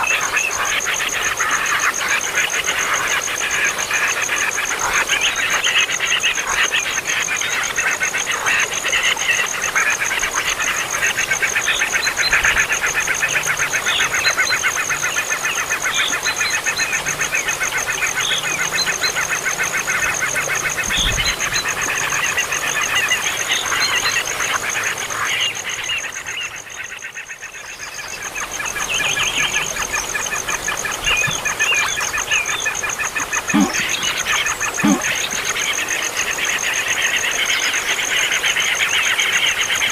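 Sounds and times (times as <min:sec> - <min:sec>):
baby birds begging calls: 0:28.2 - 0:35.6.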